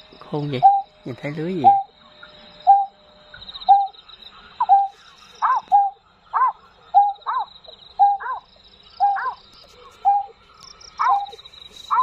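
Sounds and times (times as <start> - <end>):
bird calling: 0.0 - 12.0.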